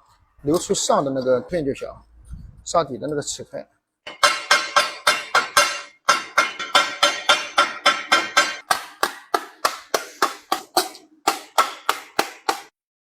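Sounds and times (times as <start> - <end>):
hammer striking sheet metal: 4.1 - 12.8.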